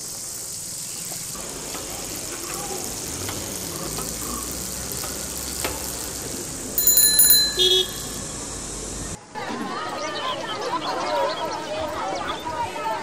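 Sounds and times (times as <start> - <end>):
faint outdoor hiss: 0.0 - 9.4
bicycle bell ringing: 4.9 - 8.6.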